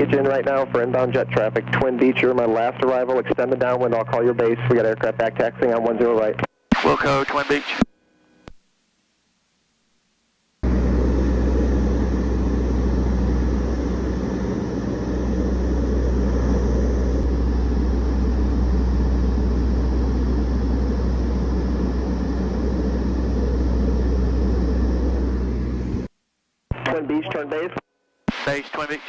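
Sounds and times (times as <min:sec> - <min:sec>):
aircraft engines droning: 0:10.6 - 0:26.1.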